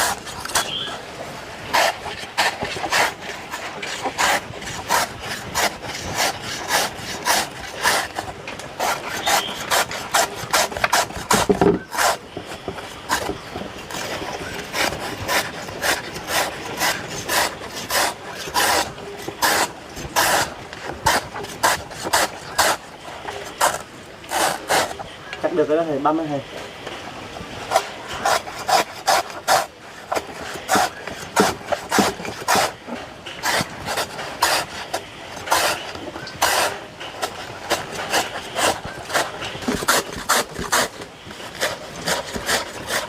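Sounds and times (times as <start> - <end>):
blade chopping wood: 1.7 - 22.8, 27.7 - 32.8, 35.4 - 43.0.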